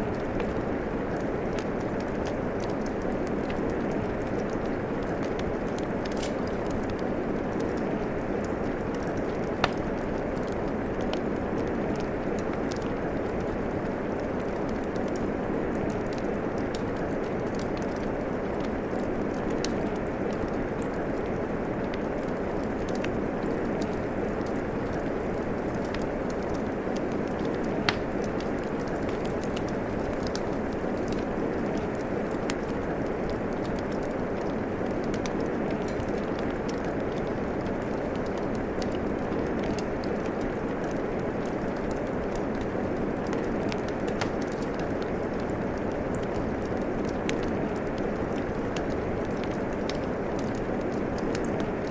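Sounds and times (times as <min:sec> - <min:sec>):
steady rain hissing: 0:00.0 - 0:51.9
wood fire crackling and popping: 0:00.0 - 0:51.9
rain hissing: 0:22.4 - 0:33.5.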